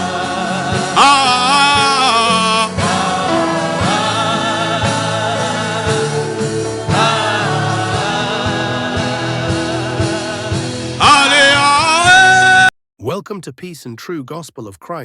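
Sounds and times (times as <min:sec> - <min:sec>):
choir singing gospel music: 0:00.0 - 0:12.7
backing beat: 0:13.0 - 0:15.0.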